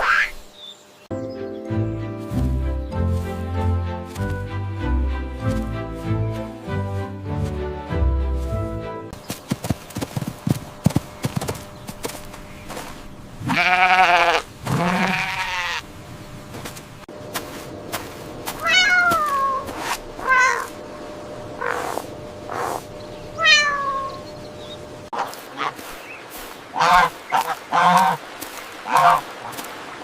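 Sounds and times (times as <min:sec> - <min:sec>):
rustling: 0:09.2 - 0:13.2, 0:16.5 - 0:20.8
goat bleating: 0:13.4 - 0:15.8
cat meowing: 0:18.6 - 0:20.7, 0:23.4 - 0:24.2.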